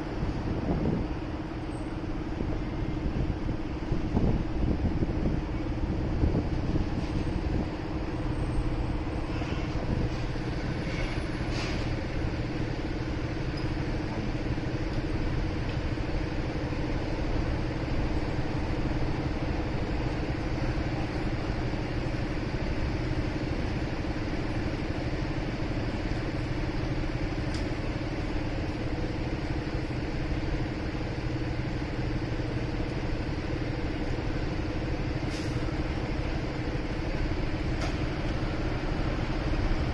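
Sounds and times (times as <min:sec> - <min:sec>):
street traffic: 0:00.0 - 0:39.9.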